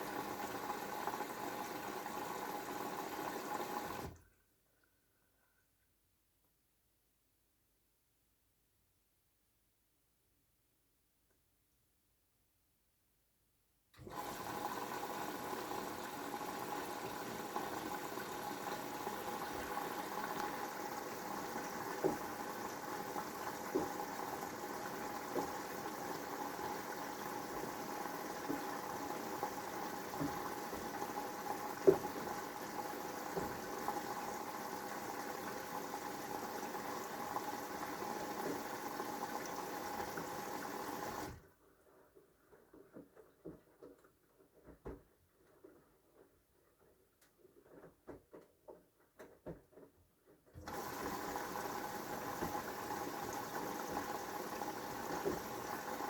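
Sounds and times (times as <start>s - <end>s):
washing machine water inlet hiss: 0.0s - 4.2s, 14.0s - 41.4s, 50.6s - 56.0s.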